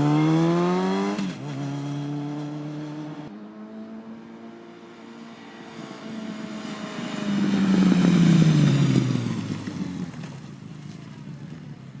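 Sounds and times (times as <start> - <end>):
motorcycle exhaust passing by: 0.0 - 11.6.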